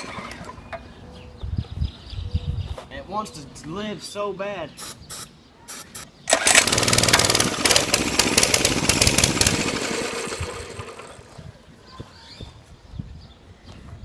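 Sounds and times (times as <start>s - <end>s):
small engine running roughly: 6.3s - 11.4s.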